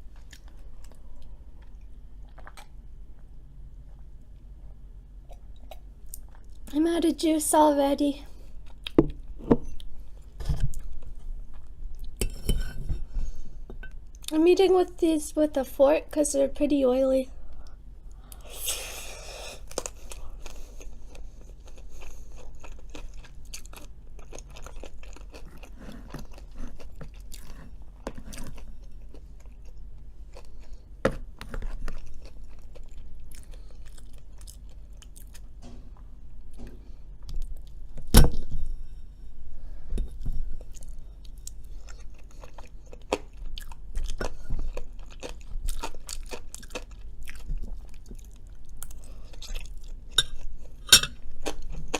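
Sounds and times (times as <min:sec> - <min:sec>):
chewing and biting fries: 0:19.6 - 0:35.5, 0:40.7 - 0:51.9.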